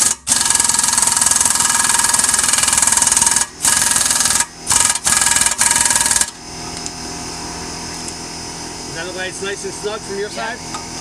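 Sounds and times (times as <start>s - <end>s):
power wrench running: 0.0s - 6.4s.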